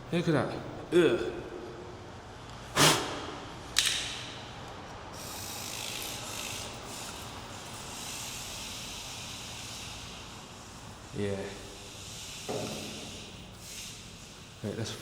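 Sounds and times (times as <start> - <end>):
small electric motor whirring: 5.2 - 14.7.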